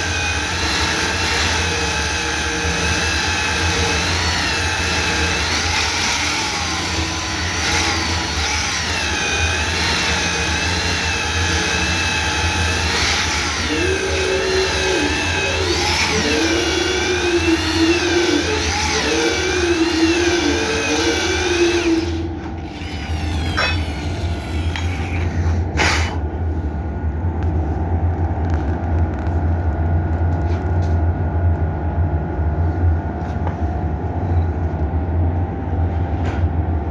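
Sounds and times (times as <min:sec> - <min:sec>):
motor running: 0:00.0 - 0:26.7
low motor whine: 0:00.0 - 0:36.9.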